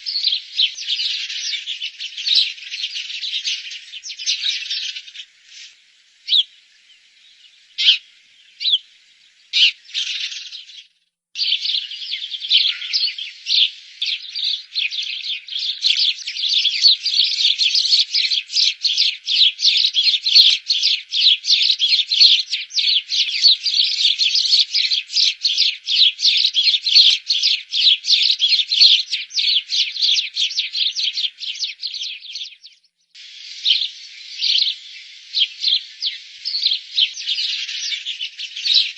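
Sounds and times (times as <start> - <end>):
sparrows chirping: 0.0 - 38.9.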